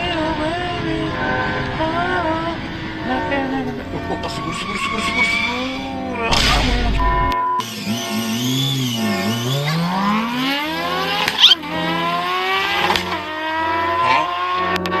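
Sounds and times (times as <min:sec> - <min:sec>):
motorcycle engine accelerating: 0:05.2 - 0:15.0.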